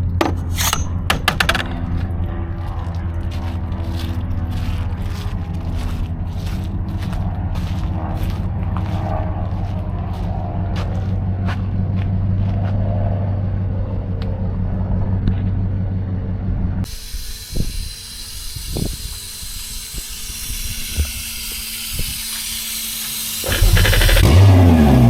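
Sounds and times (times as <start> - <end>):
engine idling: 0.0 - 25.0
sharp knocks: 0.2 - 2.0
engine revving: 1.6 - 25.0
steady hiss: 16.9 - 24.2.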